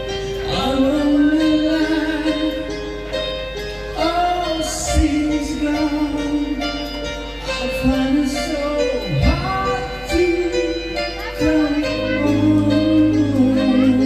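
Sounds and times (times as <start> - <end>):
instrumental music: 0.0 - 14.0
person singing long held notes: 4.0 - 14.0.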